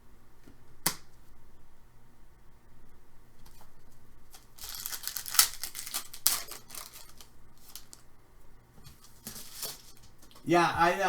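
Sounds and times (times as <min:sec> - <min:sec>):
card packaging crinkling and tearing: 0:04.3 - 0:08.0, 0:09.1 - 0:10.1.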